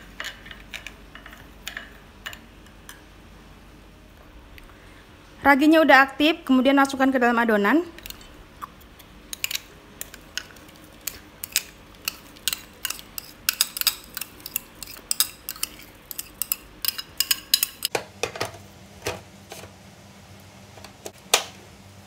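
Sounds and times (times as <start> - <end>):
spoon clinking against glass bowl: 11.4 - 17.9.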